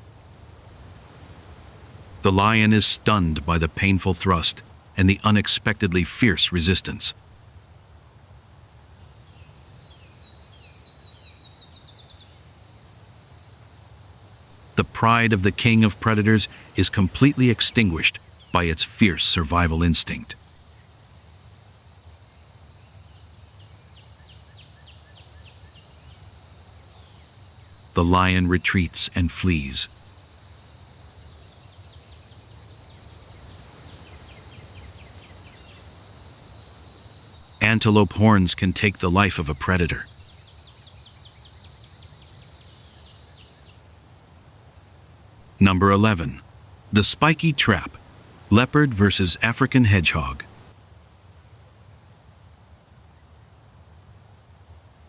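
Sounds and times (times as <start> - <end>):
high insect drone: 9.1 - 37.6
bird chirping: 14.5 - 21.3, 31.1 - 43.8, 47.0 - 50.7.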